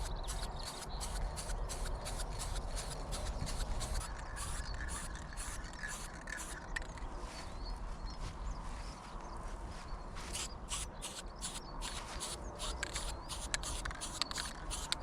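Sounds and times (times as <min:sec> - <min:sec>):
spray can ball rattling: 0:00.0 - 0:07.0, 0:10.4 - 0:15.0.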